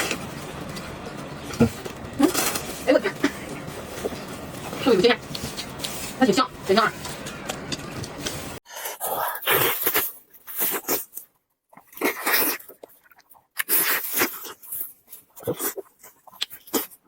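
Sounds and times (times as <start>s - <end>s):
chewing and lip-smacking: 9.4s - 17.0s.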